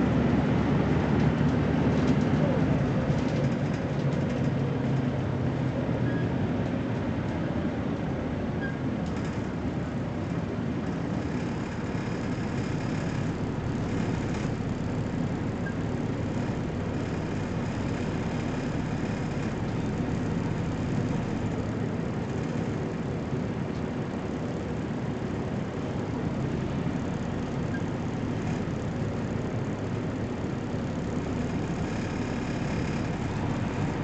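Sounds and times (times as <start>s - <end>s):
road and body noise: 0.0s - 8.4s, 16.1s - 34.0s
bus engine running: 0.0s - 34.0s.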